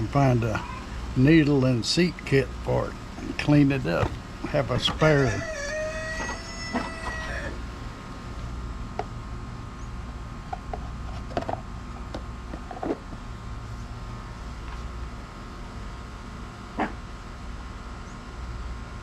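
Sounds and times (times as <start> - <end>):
rooster crowing: 4.5 - 8.1.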